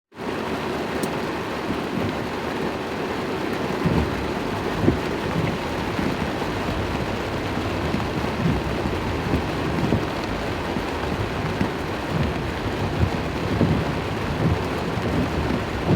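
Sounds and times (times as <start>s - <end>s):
heavy rain on a car: 0.2s - 15.9s
low thumps: 3.8s - 15.9s.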